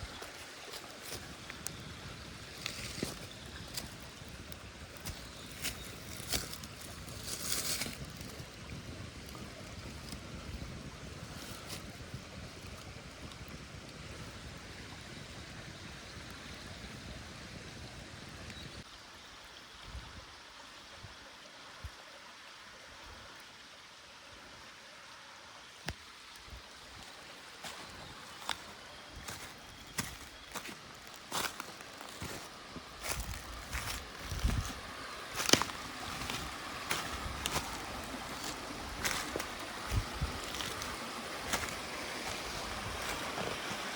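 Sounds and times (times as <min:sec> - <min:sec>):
stream rushing: 0:00.0 - 0:10.4, 0:22.3 - 0:43.9.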